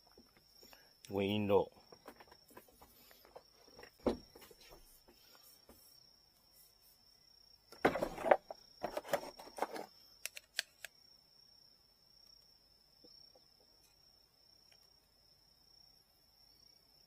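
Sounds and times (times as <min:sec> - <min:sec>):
rustling and knocks of tools: 0:01.9 - 0:05.8, 0:07.8 - 0:09.9.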